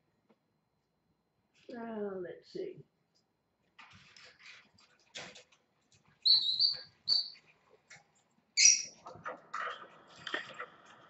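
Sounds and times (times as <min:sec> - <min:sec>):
pet bird chirping and squawking: 0:06.2 - 0:07.5, 0:08.6 - 0:09.0.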